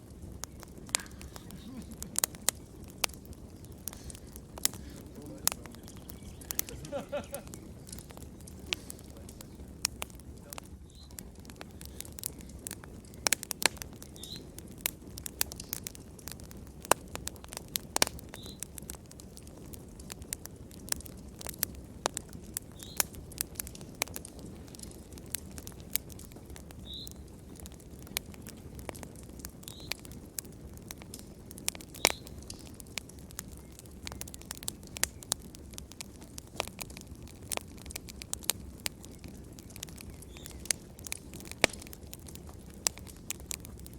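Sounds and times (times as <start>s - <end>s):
wood fire crackling: 0.0s - 43.9s
sharp pops: 0.4s - 18.9s, 30.8s - 35.4s, 36.0s - 43.9s.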